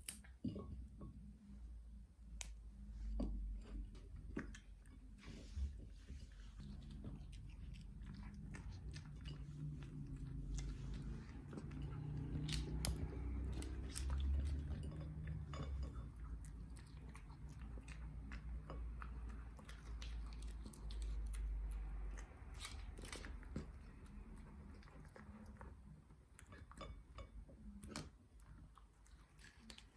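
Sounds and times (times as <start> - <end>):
low steady hum: 0.0 - 29.9
dog chewing food: 4.2 - 27.2.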